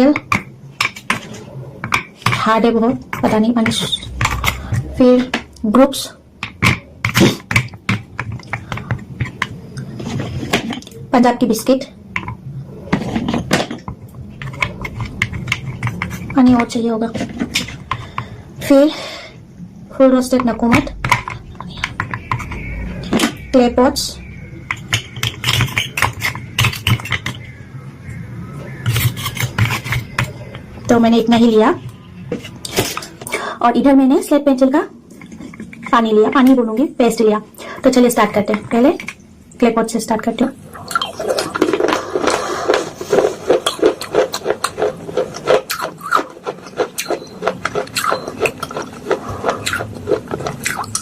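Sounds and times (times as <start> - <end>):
spoon crushing clay pieces: 41.4 - 51.0.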